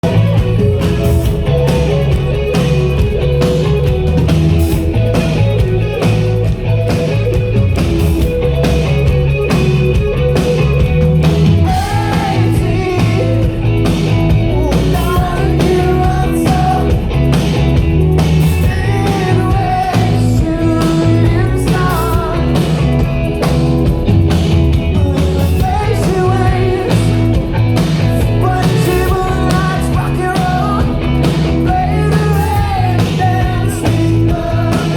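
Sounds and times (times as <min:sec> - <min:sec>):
drums: 0:00.0 - 0:34.9
guitar: 0:00.0 - 0:34.9
rock band playing: 0:00.0 - 0:34.9
person singing: 0:11.6 - 0:13.8, 0:14.5 - 0:17.2, 0:18.0 - 0:23.0, 0:24.9 - 0:27.4, 0:28.2 - 0:34.9.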